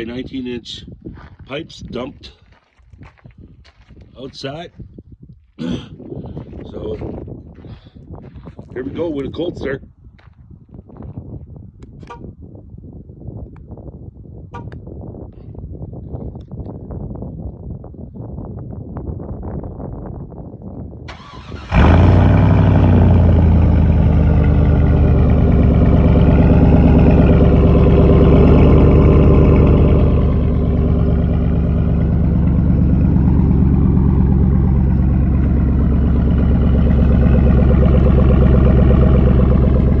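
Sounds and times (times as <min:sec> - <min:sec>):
engine starting and idling: 0:21.1 - 0:40.0.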